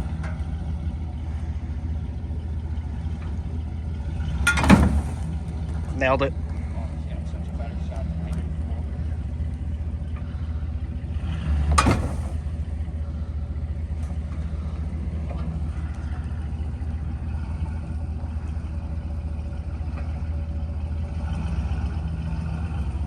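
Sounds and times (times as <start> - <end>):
car rolling low rumble: 0.0 - 23.0
sharp loud clunk: 4.5 - 5.3, 11.8 - 12.4.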